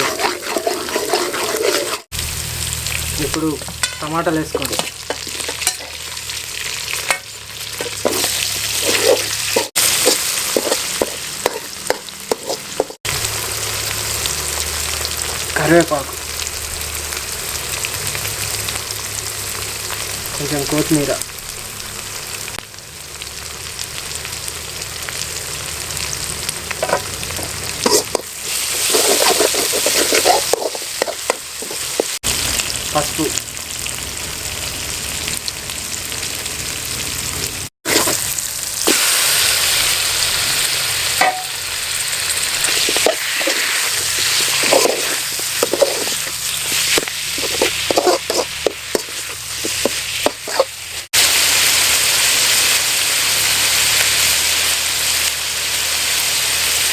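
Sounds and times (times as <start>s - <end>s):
spatula scraping a pan: 0.0s - 2.1s, 3.8s - 6.2s, 6.9s - 13.0s, 26.8s - 32.2s, 37.9s - 38.2s, 42.6s - 51.1s
food frying in hot oil: 0.0s - 56.9s.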